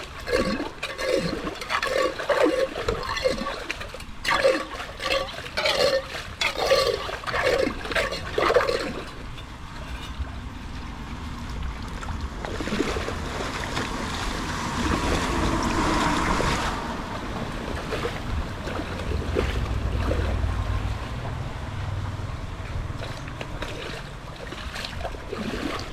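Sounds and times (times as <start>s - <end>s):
water rushing through culvert: 0.0s - 25.9s
low rumble: 9.1s - 25.3s
short splashes: 11.6s - 21.3s, 22.6s - 25.9s.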